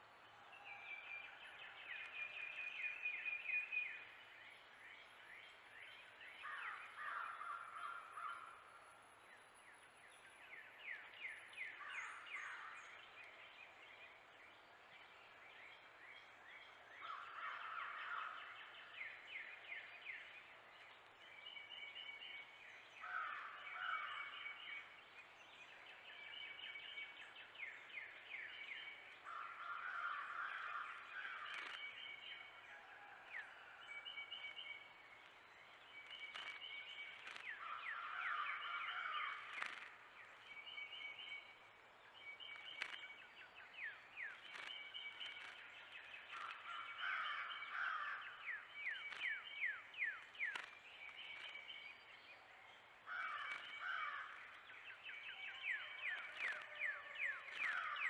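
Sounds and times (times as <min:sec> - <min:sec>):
faint clicks: 0:29.3 - 0:32.4, 0:34.4 - 0:38.0, 0:39.2 - 0:41.0, 0:42.4 - 0:51.9, 0:53.1 - 0:54.7, 0:55.6 - 0:58.0.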